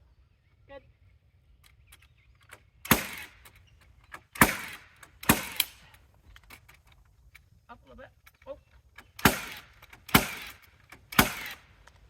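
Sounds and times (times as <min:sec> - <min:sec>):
hammer driving nails into wood: 0:04.1 - 0:05.8, 0:09.0 - 0:12.0.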